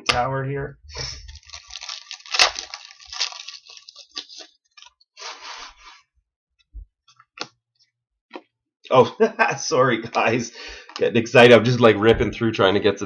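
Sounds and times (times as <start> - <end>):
foil wrappers crinkling and tearing: 1.3 - 4.9.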